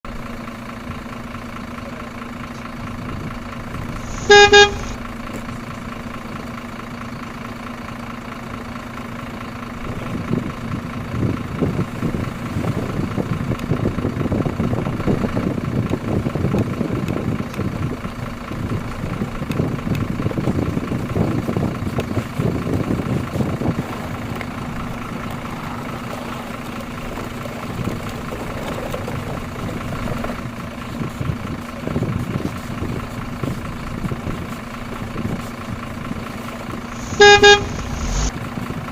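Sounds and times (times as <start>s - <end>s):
rough vehicle rumble: 0.0s - 38.9s
vehicle horn toot: 4.0s - 5.0s, 36.9s - 38.3s
low hum: 32.9s - 38.3s.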